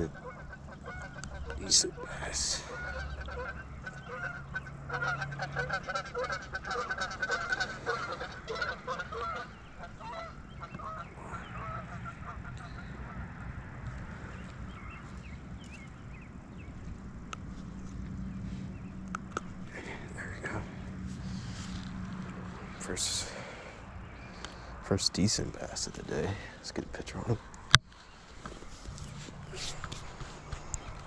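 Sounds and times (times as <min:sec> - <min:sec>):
geese honking: 0:00.0 - 0:15.3.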